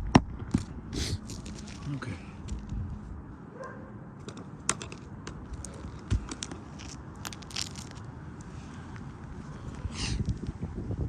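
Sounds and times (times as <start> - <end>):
shingles crackling and clicking: 4.3 - 8.1.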